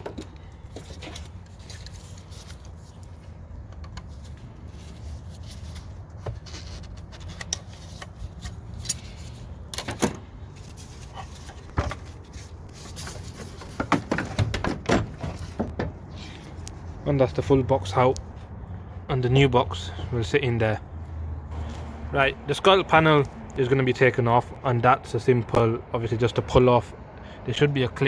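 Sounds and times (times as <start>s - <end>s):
plastic parts knocking and clicking: 13.0s - 16.0s.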